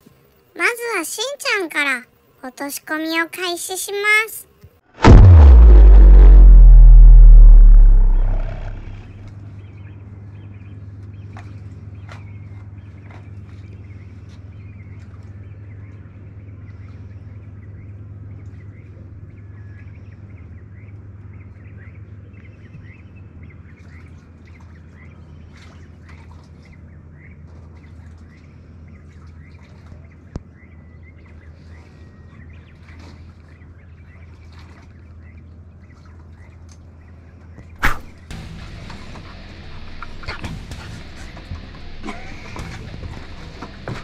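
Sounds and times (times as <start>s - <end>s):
steady low hum: 5.0s - 23.7s.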